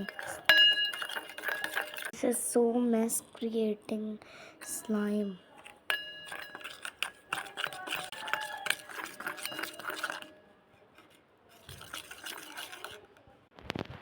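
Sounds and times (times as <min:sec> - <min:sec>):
spoon clinking against bowl: 0:00.0 - 0:02.2, 0:04.6 - 0:10.4, 0:11.0 - 0:13.1.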